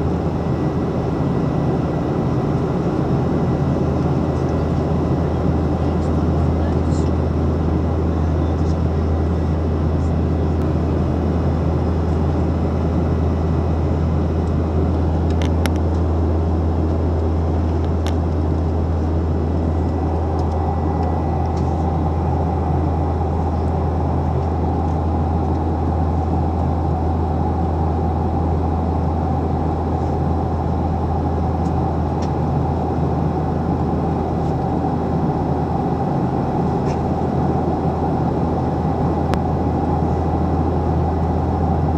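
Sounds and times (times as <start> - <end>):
airplane cabin engine rumble: 0.0 - 41.9
steady high tone: 18.7 - 41.9.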